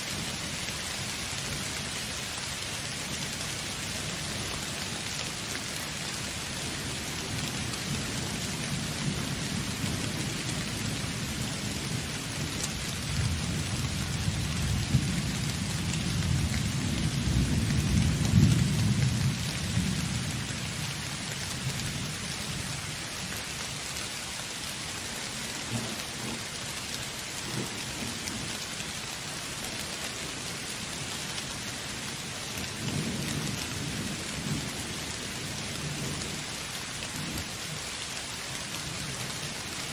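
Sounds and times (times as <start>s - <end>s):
heavy rain on surfaces: 0.0s - 39.9s.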